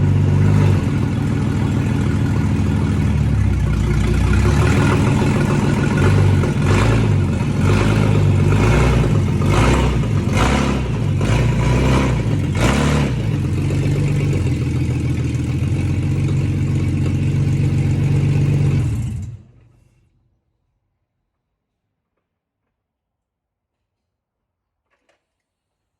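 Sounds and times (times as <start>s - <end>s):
car engine revving and idling: 0.0s - 19.6s.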